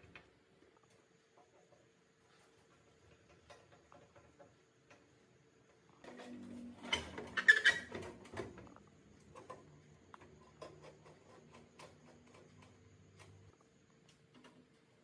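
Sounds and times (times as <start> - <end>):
scraping and rattling of computer parts: 6.0 - 13.5.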